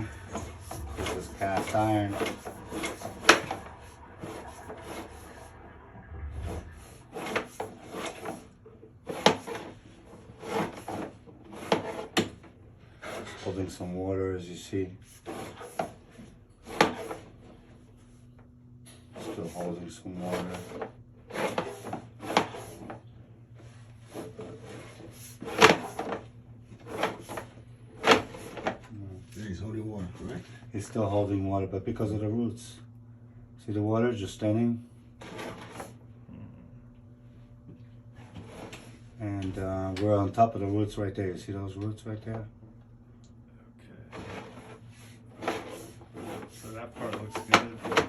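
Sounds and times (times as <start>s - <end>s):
cable scraping in a pipe: 0.0s - 18.1s, 18.9s - 29.0s, 35.2s - 36.0s, 38.2s - 39.2s, 44.1s - 48.0s
faint steady low hum: 0.0s - 48.0s.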